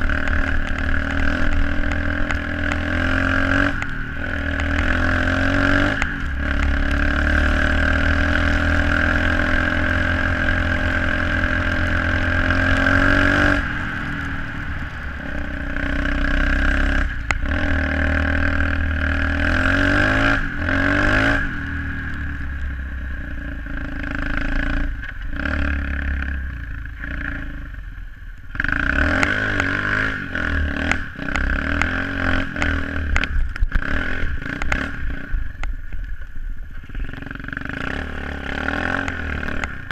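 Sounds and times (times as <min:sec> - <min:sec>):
motorbike engine revving: 0:00.0 - 0:27.8, 0:28.5 - 0:35.7, 0:36.8 - 0:39.9.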